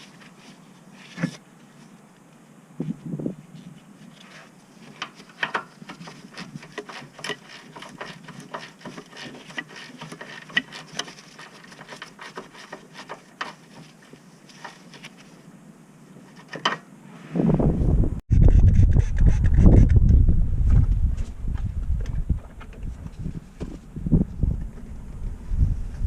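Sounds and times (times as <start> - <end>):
hand tools clicking and knocking: 4.9 - 14.8.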